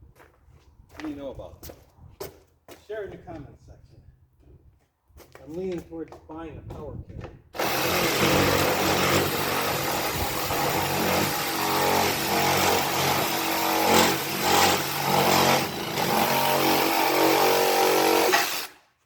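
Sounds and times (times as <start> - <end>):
power tool motor running: 7.6 - 18.8.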